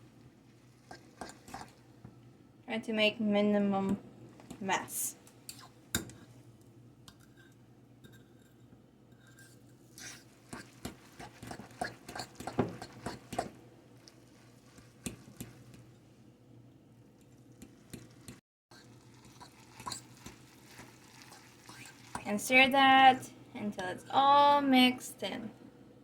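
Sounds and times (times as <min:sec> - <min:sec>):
wet squishing of noodles: 0:00.0 - 0:02.0, 0:09.9 - 0:16.0, 0:17.0 - 0:22.3.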